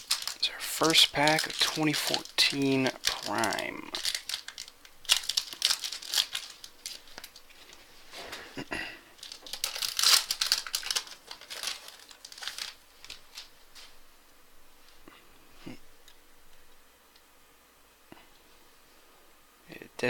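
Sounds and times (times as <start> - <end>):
plastic wrapper tearing and crinkling: 0.0 - 7.8, 9.2 - 14.0.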